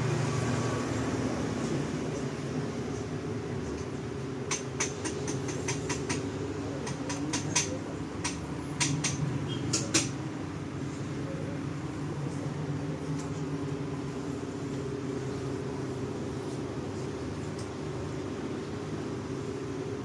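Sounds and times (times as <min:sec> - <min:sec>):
engine running: 0:00.0 - 0:17.4
sharp irregular clicks: 0:04.5 - 0:10.2.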